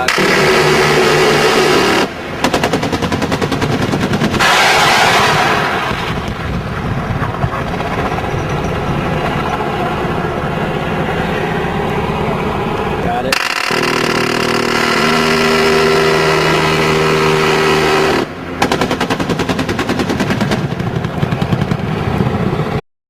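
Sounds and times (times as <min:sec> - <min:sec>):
automatic cannon fire: 0:00.0 - 0:06.6, 0:18.1 - 0:22.0
steady rumble: 0:00.0 - 0:22.8.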